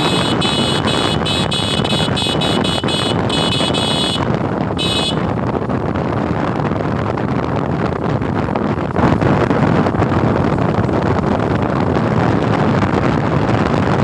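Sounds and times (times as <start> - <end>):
vehicle horn beeping: 0.0 - 5.3
motorcycle road noise: 0.0 - 14.0
wind noise: 0.0 - 14.0.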